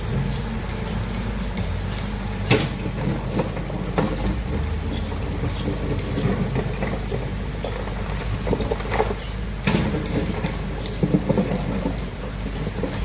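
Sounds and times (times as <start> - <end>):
diesel excavator engine running: 0.0 - 13.0
metallic knocks and clanks: 0.0 - 13.0.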